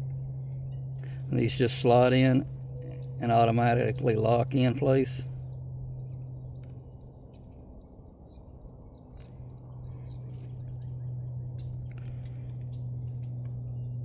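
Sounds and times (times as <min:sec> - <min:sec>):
steady low hum: 0:00.0 - 0:14.0
bird chirping: 0:05.4 - 0:14.0.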